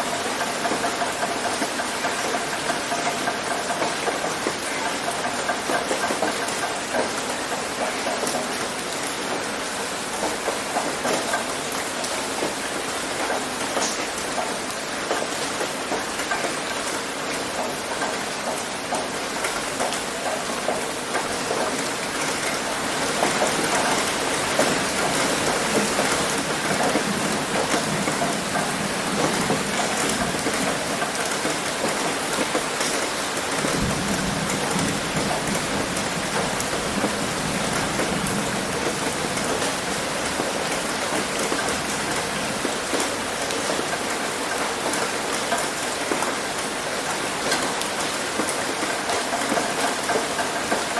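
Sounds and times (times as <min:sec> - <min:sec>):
heavy rain on a roof: 0:00.0 - 0:50.9.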